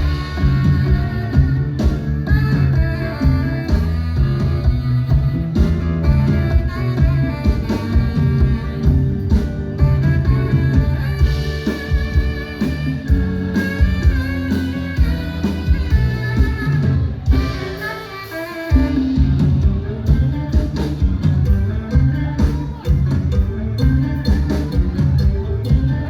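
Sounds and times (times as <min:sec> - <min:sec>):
drum kit beat: 0:00.0 - 0:26.0
guitar lines: 0:00.0 - 0:26.0
live band playing: 0:00.0 - 0:26.0.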